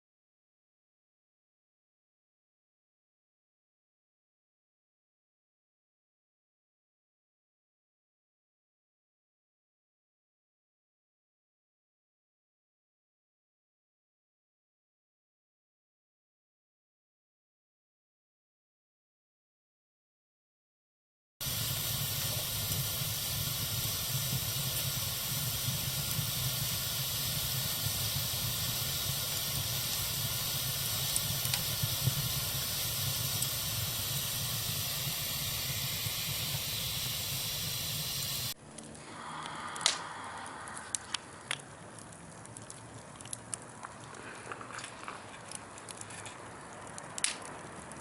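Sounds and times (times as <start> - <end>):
fire crackling and popping: 21.4 - 48.0
fire flames hissing: 21.4 - 48.0.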